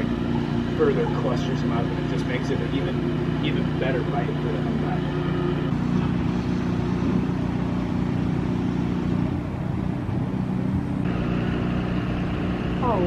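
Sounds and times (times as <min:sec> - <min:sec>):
boat motors humming: 0:00.0 - 0:13.0.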